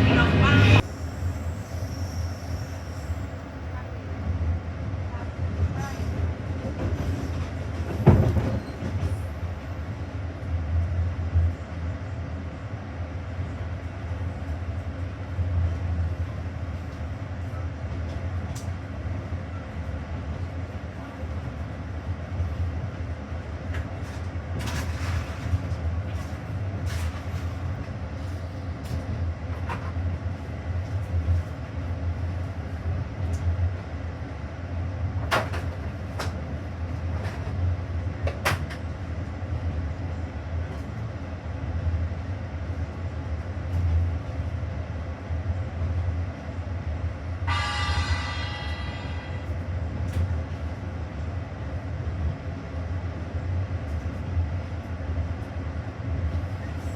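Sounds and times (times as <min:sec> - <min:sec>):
train rumbling: 0:00.0 - 0:56.9
high-pitched ringing: 0:47.5 - 0:49.6.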